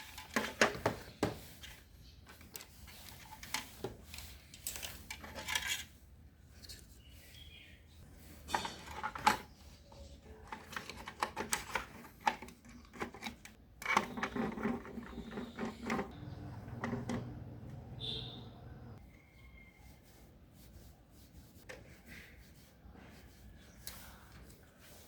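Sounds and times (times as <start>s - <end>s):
low steady hum: 15.9s - 19.0s.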